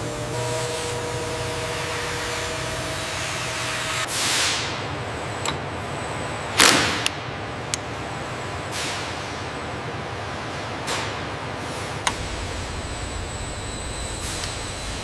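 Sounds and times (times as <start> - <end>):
steady hiss: 12.1 - 15.0.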